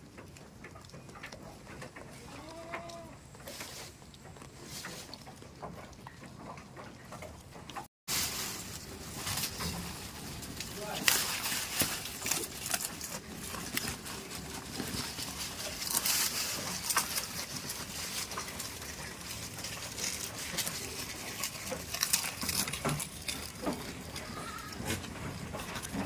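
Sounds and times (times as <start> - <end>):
goats moving about: 0.0 - 26.0
rustling: 0.0 - 26.0
hoof clicks: 9.4 - 26.0.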